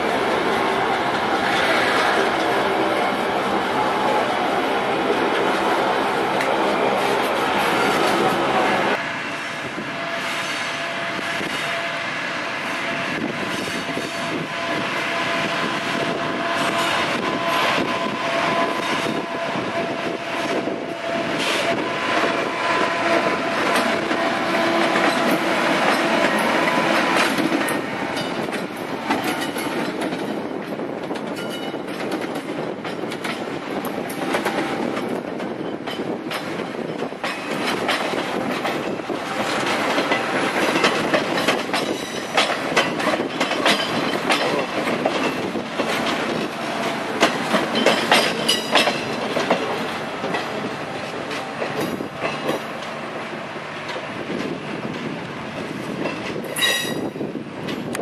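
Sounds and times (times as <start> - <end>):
train wheels clicking over rail joints: 13.2 - 58.0.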